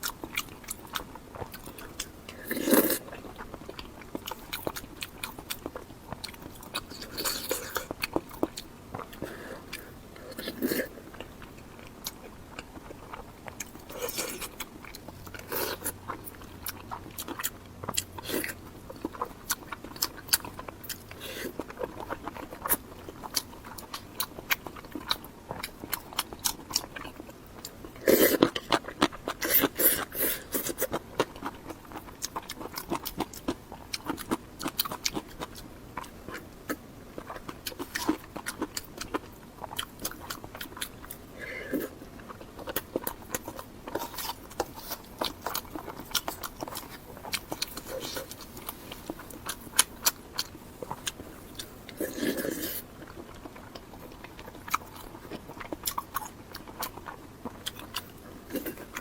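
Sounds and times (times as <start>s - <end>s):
close-miked chewing and crunching: 0.0s - 59.0s.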